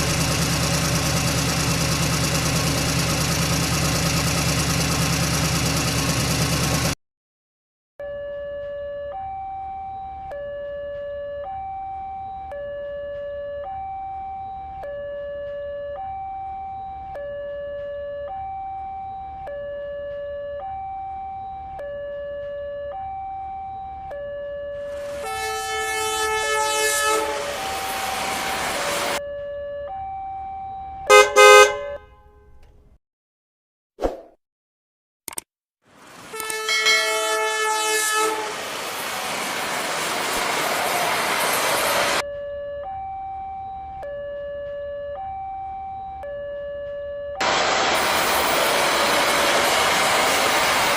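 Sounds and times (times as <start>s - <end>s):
two-tone emergency siren: 8.0s - 32.5s, 36.3s - 50.9s
train horn chord: 25.0s - 28.5s, 31.1s - 32.6s, 36.3s - 38.7s
passing train rumble and clatter: 25.0s - 29.2s, 36.0s - 42.2s, 47.5s - 50.9s.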